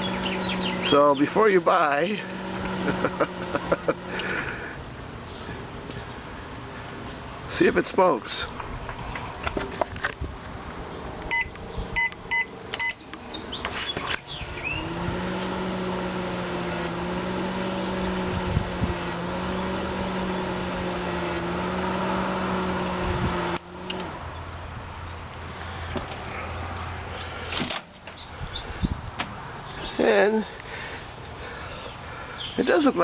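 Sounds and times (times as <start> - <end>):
microwave keypad beeping: 11.3 - 13.0.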